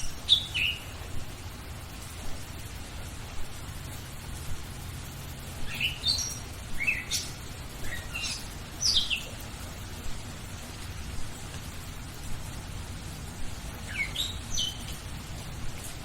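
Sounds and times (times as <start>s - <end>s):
songbird chirping: 0.0s - 1.0s, 5.6s - 9.5s, 13.6s - 15.9s
steady rain: 0.0s - 16.0s.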